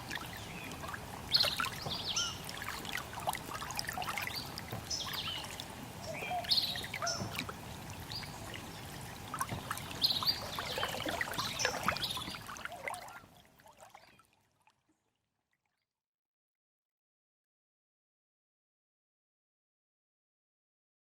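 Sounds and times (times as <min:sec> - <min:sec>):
trickle of running water: 0:00.0 - 0:15.8
small birds chirping: 0:00.1 - 0:02.4, 0:08.1 - 0:12.4.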